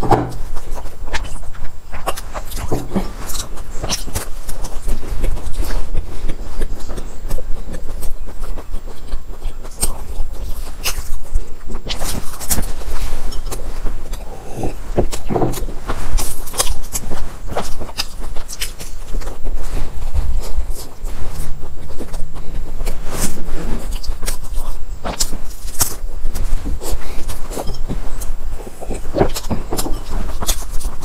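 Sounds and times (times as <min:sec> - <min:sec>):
chewing and crunching pastry: 0:00.0 - 0:31.0
person swallowing water: 0:02.6 - 0:03.2, 0:14.1 - 0:15.8.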